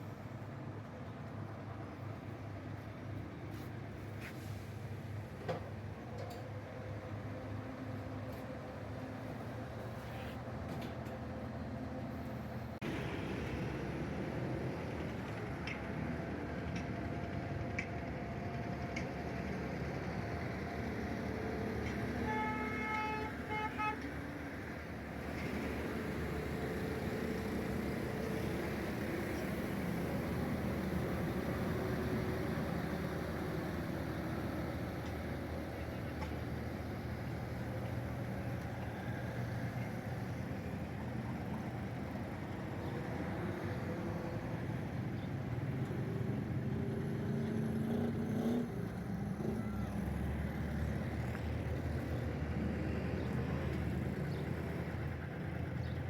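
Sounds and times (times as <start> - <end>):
vehicle engines running: 0.0 - 56.0
horn tooting: 22.2 - 24.1.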